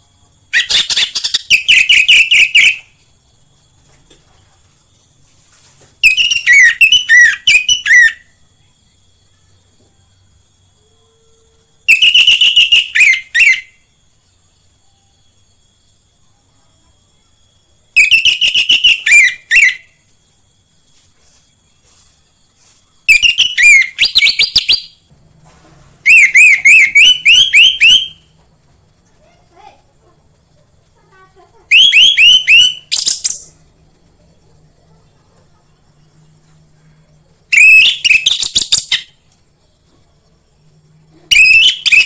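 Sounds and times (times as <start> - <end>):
thrush singing whistled notes: 0.5 - 3.0, 6.0 - 16.0, 17.9 - 20.8, 23.0 - 25.1, 26.0 - 28.4, 31.7 - 33.7, 37.5 - 39.8, 40.4 - 42.0.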